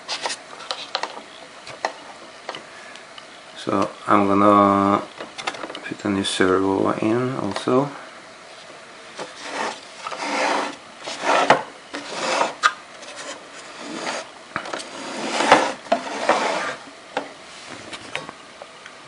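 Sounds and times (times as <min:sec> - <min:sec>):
parts rubbing and scraping: 0:00.0 - 0:02.2, 0:09.1 - 0:16.9.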